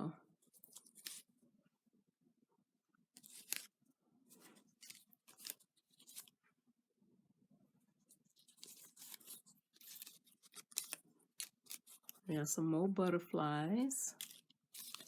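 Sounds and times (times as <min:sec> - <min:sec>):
sticker sheets rustling: 0:00.4 - 0:01.3, 0:03.2 - 0:06.4, 0:08.0 - 0:12.3, 0:14.1 - 0:15.0.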